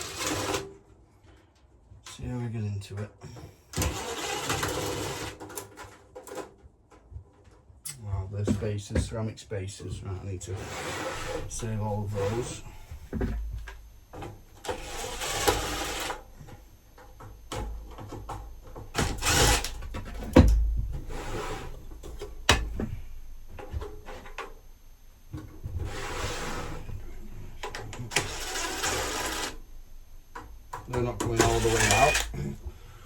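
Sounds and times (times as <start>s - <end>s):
sharp clicks and knocks: 30.2s - 32.8s
metal parts scraping: 30.9s - 32.6s.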